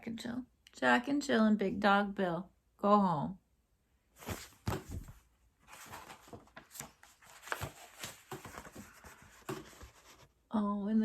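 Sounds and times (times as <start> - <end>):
paper book page turning: 4.2 - 10.4.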